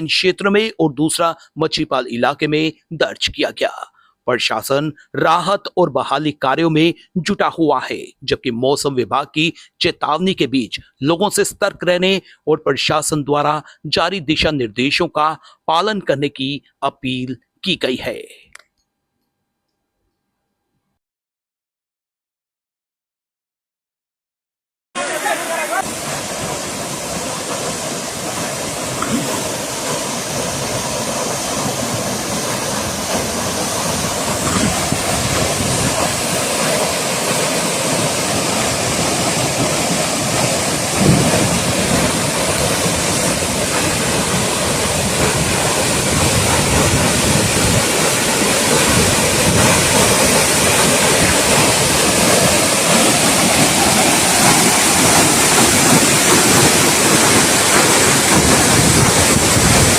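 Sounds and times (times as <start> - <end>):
fast-flowing water rushing: 25.0 - 59.9.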